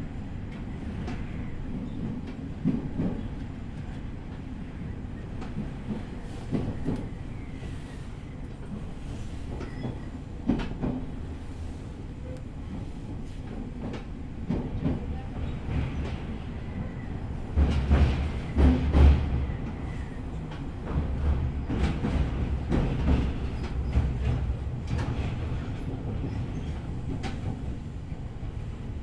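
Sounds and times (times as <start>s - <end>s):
train low rumble: 0.0s - 29.0s.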